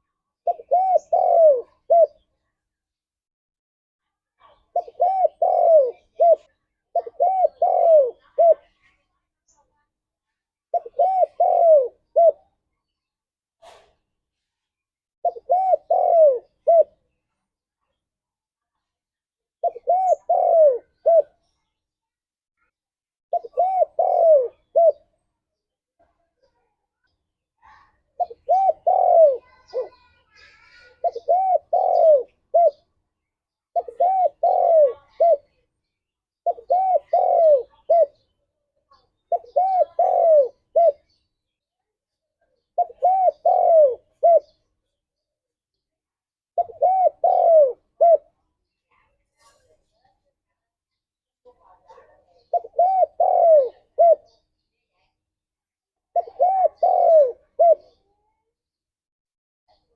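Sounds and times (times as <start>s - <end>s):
dove cooing: 0.0s - 2.2s, 4.5s - 8.8s, 10.7s - 12.6s, 15.2s - 17.0s, 19.6s - 21.4s, 23.3s - 25.1s, 28.2s - 32.9s, 33.7s - 35.5s, 36.4s - 38.3s, 39.2s - 41.2s, 42.7s - 44.6s, 46.6s - 48.3s, 52.4s - 54.4s, 56.1s - 58.1s.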